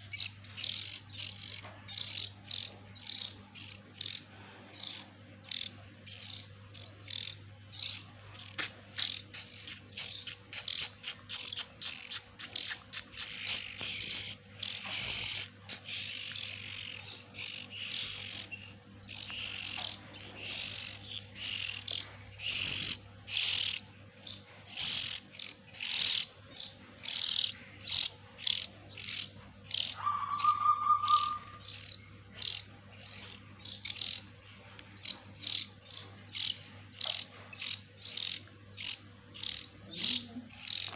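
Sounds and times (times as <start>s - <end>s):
nestlings chirping: 0.0s - 40.9s.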